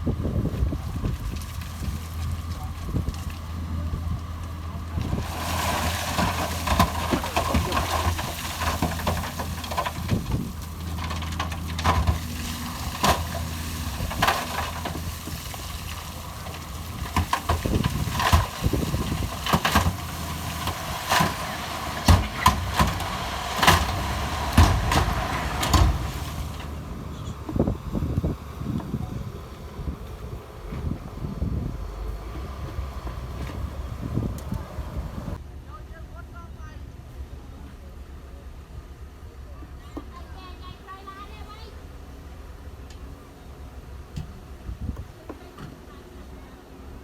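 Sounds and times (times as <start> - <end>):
diesel machine running: 0.0 - 39.6.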